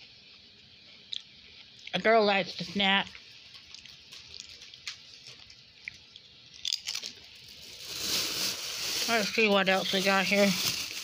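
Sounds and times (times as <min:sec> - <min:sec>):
person crunching potato chips: 0:03.0 - 0:11.0.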